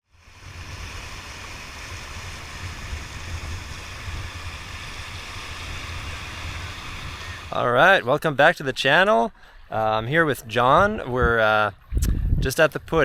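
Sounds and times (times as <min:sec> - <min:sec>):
low wavering rumble: 0:00.0 - 0:07.8
river water rushing: 0:00.0 - 0:09.0.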